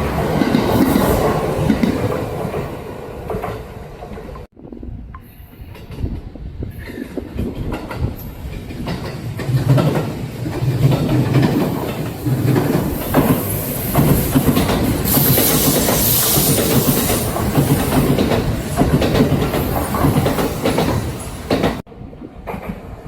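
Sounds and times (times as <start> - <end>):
electric train passing: 0.0 - 4.5, 5.2 - 23.0
wheels clicking over rail joints: 5.2 - 21.8.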